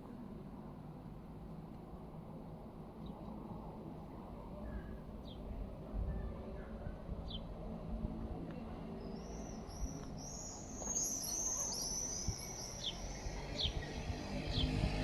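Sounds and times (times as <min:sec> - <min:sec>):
small songbird chirping: 0:09.0 - 0:14.9.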